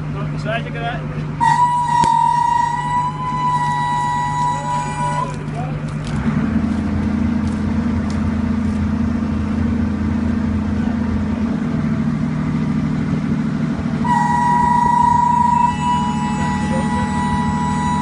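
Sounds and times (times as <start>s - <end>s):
high warning tone: 1.4s - 5.8s, 14.0s - 18.0s
motor running: 1.4s - 6.4s, 14.0s - 18.0s.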